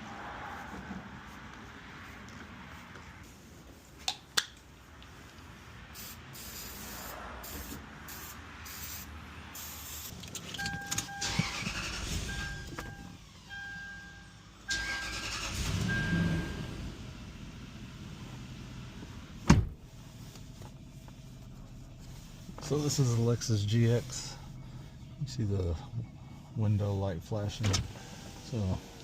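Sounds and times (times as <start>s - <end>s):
car warning chime beeping: 10.5s - 16.7s.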